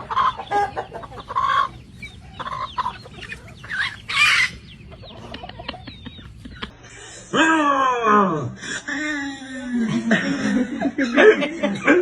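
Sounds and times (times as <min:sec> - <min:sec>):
bird clucking calls: 0:00.0 - 0:06.8.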